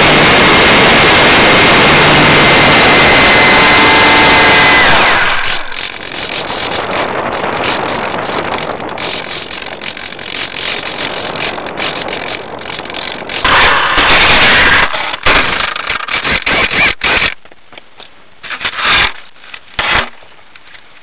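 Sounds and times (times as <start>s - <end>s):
propeller motor whine: 0.0s - 17.0s.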